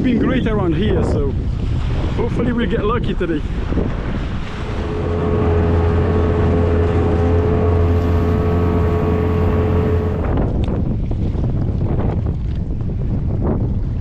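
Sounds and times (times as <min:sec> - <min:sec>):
wind on microphone: 0:00.0 - 0:14.0
outboard motor droning: 0:03.6 - 0:11.1.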